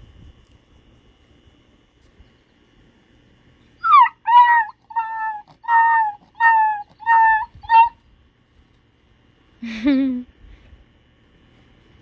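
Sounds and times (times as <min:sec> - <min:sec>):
puppy whining: 0:03.8 - 0:08.0.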